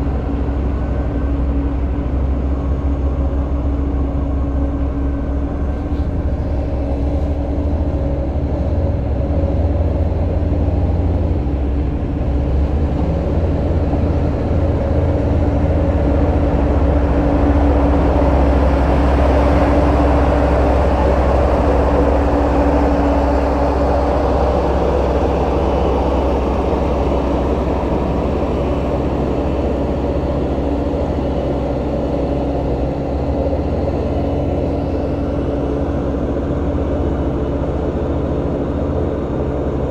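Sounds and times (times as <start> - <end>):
earthmover diesel engine rumbling: 0.0 - 39.9.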